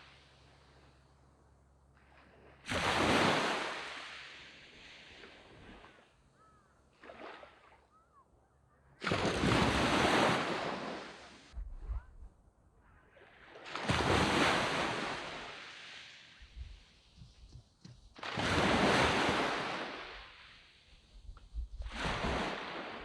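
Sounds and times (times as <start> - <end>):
sea waves breaking on sand: 0.0 - 0.8, 2.0 - 6.2, 6.9 - 7.8, 9.0 - 11.6, 13.1 - 23.0.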